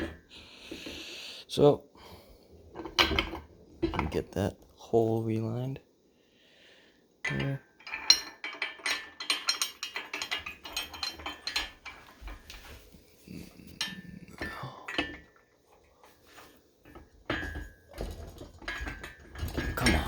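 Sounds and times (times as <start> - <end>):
steel parts clinking and knocking: 0.0 - 0.3, 2.7 - 4.4, 7.2 - 20.0.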